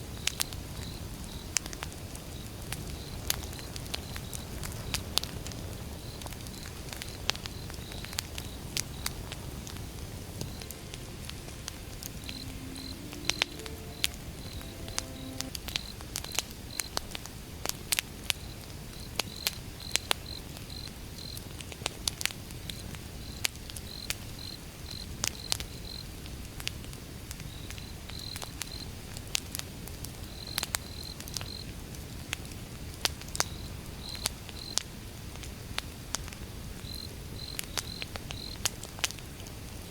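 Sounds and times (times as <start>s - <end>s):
campfire crackling: 1.6s - 13.7s
crickets chirping: 6.0s - 16.0s.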